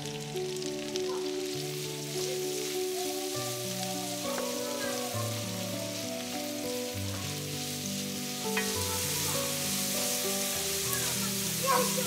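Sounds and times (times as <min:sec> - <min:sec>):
onions sizzling in a pan: 0:00.0 - 0:12.0
soft background music: 0:00.0 - 0:12.0.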